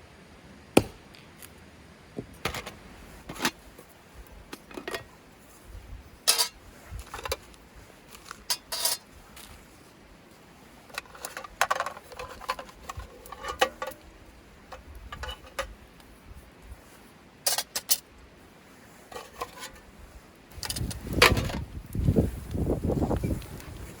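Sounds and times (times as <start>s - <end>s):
light metal clinks and knocks: 6.2s - 7.5s, 8.2s - 9.5s, 14.7s - 15.7s.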